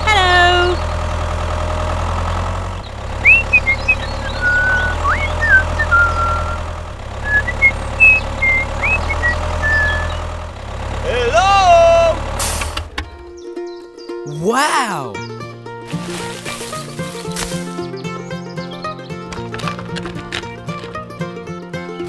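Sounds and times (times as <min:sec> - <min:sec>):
tractor engine idling: 0:00.0 - 0:13.4
high chirping whistles: 0:03.2 - 0:06.6, 0:07.2 - 0:10.3
voice-like call: 0:03.2 - 0:06.6, 0:07.3 - 0:10.2, 0:14.2 - 0:15.2.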